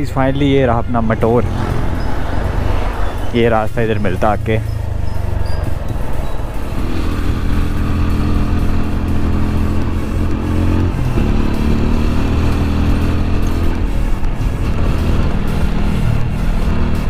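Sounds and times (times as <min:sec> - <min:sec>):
motorcycle engine running: 0:04.4 - 0:17.0.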